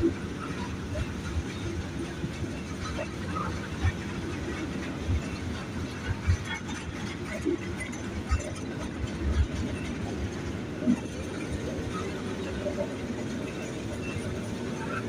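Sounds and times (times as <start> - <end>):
train cars clunking: 0.0 - 15.0
train wheels rumbling on rails: 0.0 - 15.0.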